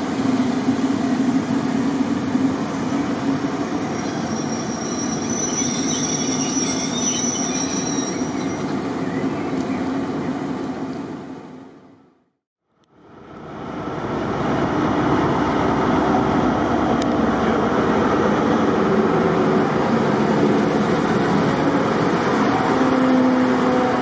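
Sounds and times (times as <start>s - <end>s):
diesel locomotive running: 13.0s - 24.0s.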